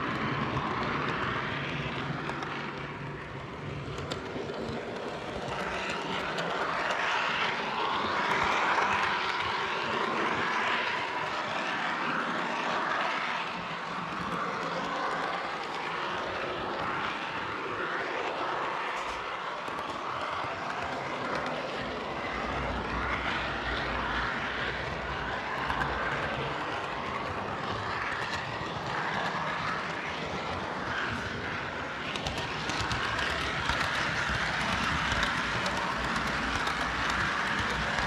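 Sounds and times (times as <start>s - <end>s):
fine clicking over track: 0.0s - 38.0s
wheels rolling on track: 0.0s - 38.0s
model train motor whir: 18.4s - 38.0s.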